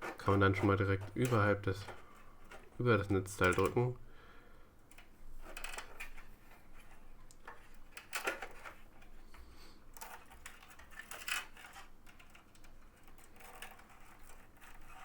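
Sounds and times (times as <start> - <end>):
cables rustling and clicking: 0.0 - 4.0, 4.8 - 15.0.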